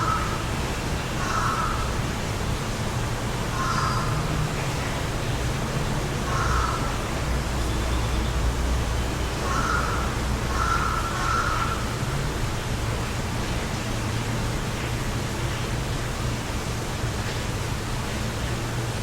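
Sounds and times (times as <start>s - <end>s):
bird calling: 3.6s - 4.2s, 9.4s - 11.9s.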